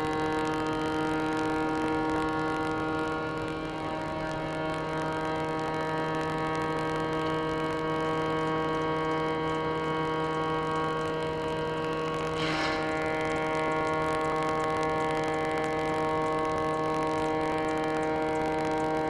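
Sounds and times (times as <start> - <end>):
steady machine drone: 0.0 - 19.0
brief hiss: 12.4 - 14.1.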